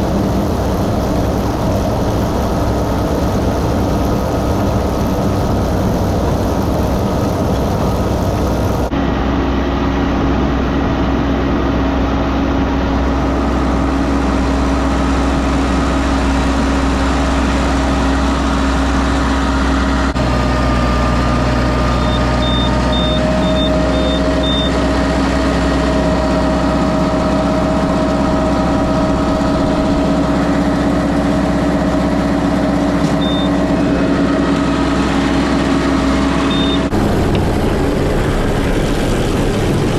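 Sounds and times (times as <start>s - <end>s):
tractor engine droning: 0.0s - 39.9s
faint short high beeps: 33.2s - 33.5s, 36.5s - 36.8s.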